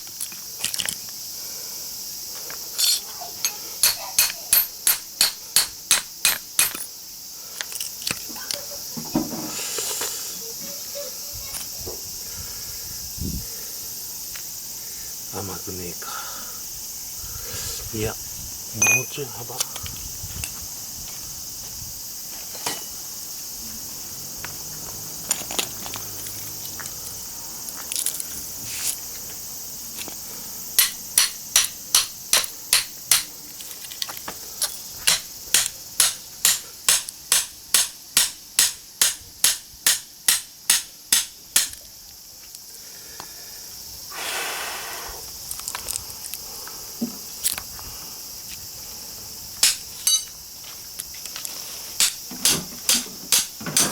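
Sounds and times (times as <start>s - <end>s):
insects chirring: 0.0s - 53.9s
hammer striking chisel on metal: 2.8s - 6.9s, 18.8s - 19.1s, 30.8s - 33.3s, 35.1s - 41.8s, 49.6s - 50.3s, 52.0s - 53.9s.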